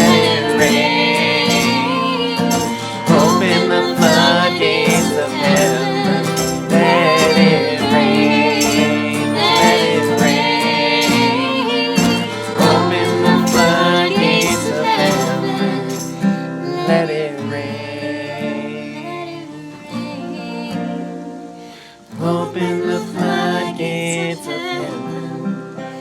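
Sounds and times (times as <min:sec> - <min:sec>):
band playing worship song: 0:00.0 - 0:17.0
voices singing: 0:00.0 - 0:26.0.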